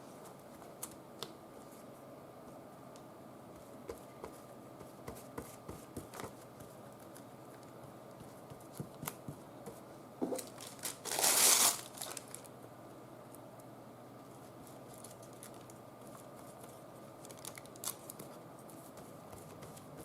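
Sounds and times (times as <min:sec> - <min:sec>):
tissue paper crinkling: 0:10.4 - 0:12.5, 0:14.9 - 0:18.4.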